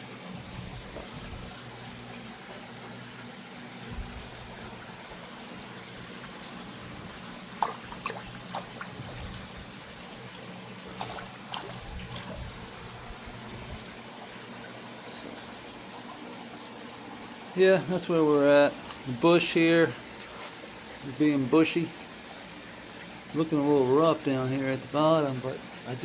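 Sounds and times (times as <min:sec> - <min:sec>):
low steady hum: 0:00.0 - 0:17.0
water trickling: 0:00.0 - 0:26.0.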